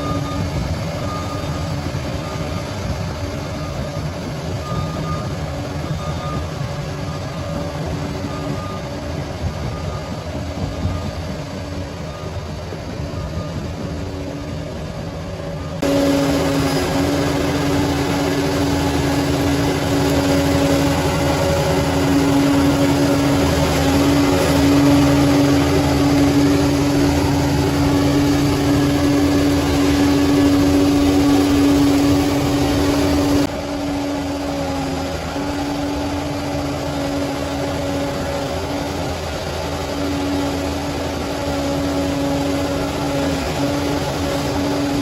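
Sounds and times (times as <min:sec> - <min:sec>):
bulldozer diesel engine running: 0:00.0 - 0:45.0.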